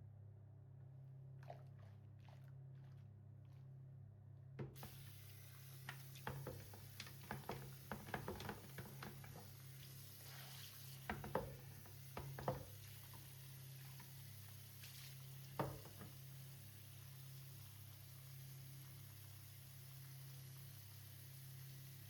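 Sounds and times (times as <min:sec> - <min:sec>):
food sizzling in a pan: 0:04.8 - 0:22.0.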